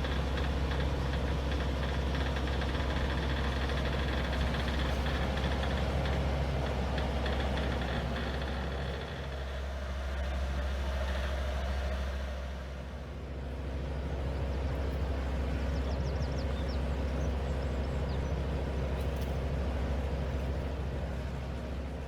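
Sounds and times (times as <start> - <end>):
diesel engine humming: 0.0 - 22.0.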